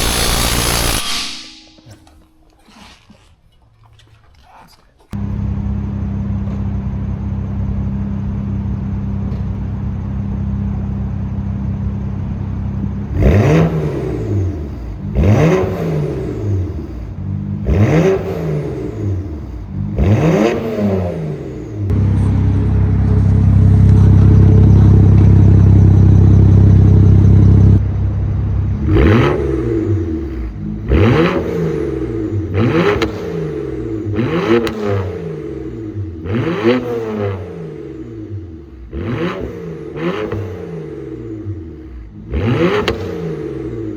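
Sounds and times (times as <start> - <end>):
loud car engine revving: 0.0 - 1.4, 10.2 - 43.9.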